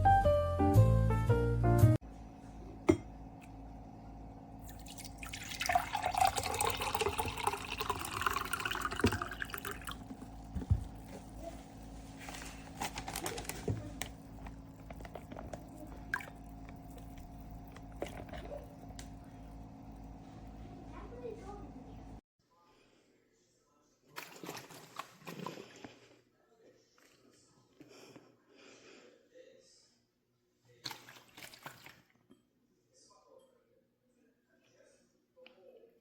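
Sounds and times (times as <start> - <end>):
liquid pouring: 4.6 - 11.4, 12.9 - 20.2.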